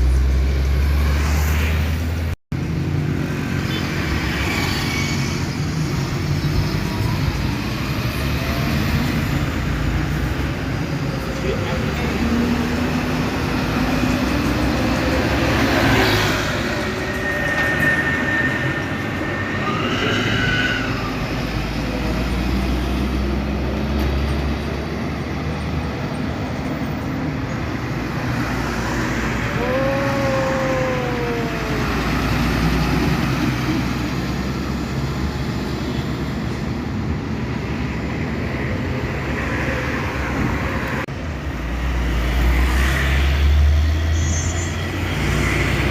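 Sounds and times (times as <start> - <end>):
high squeal: 15.0 - 21.8, 44.0 - 45.3.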